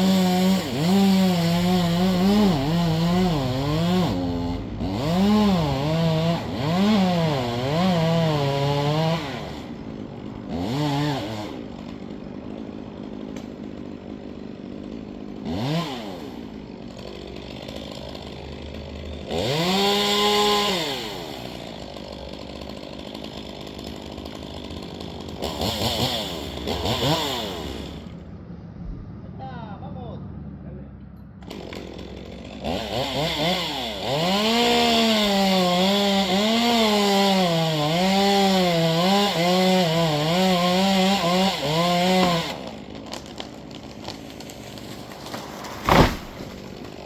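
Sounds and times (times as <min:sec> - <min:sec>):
chainsaw revving and idling: 0:00.0 - 0:28.4, 0:31.4 - 0:47.0.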